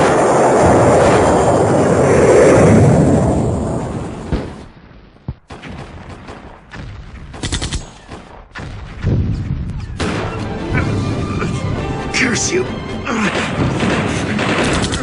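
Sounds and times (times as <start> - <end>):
loud rumble: 0.0 - 4.6
rifle shots: 13.3 - 15.0
machine-gun burst: 13.4 - 15.0.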